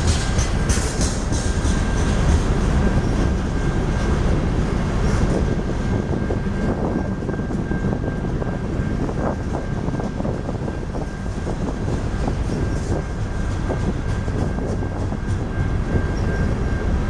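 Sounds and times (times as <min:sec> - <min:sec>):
wheels clicking over rail joints: 0:00.0 - 0:04.2
freight train rumble: 0:00.0 - 0:17.0
high whine of wheels on rails: 0:00.0 - 0:17.0.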